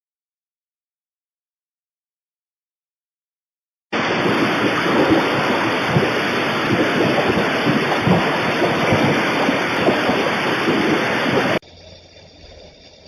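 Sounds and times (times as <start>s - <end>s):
loud rushing noise with rumbling: 4.0s - 11.6s.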